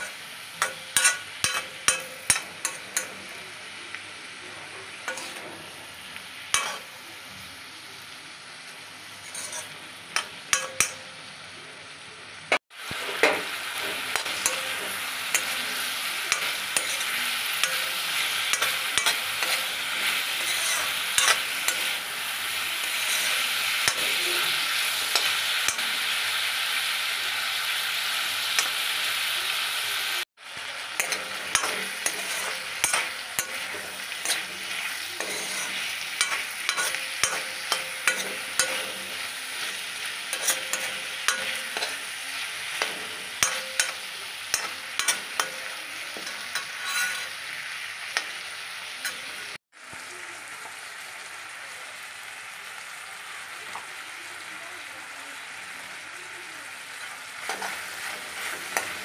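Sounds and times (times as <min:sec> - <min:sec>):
metal spoon scraping a pan: 0:00.0 - 0:03.4, 0:04.9 - 0:07.0, 0:09.1 - 0:11.2, 0:12.9 - 0:29.7, 0:30.8 - 0:49.6, 0:57.0 - 0:59.0
vegetables sizzling in a pan: 0:00.0 - 0:59.0.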